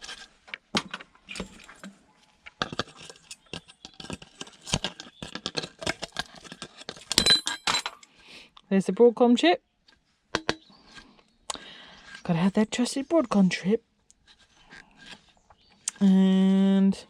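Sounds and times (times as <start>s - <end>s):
plastic case and tools clattering: 0.0s - 8.0s.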